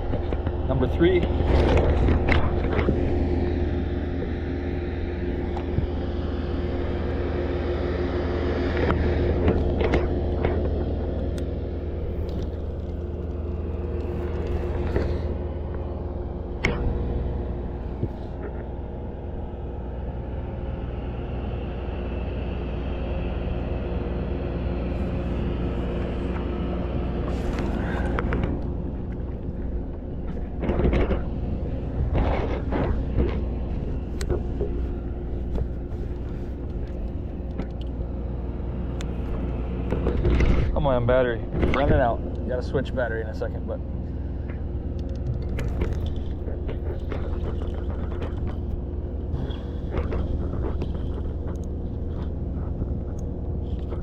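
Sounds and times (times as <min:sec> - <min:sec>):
low mechanical drone: 0:00.0 - 0:54.0.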